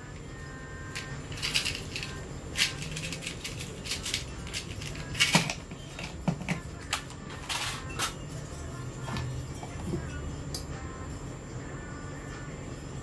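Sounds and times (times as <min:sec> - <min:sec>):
small tools clattering: 0:01.0 - 0:08.2.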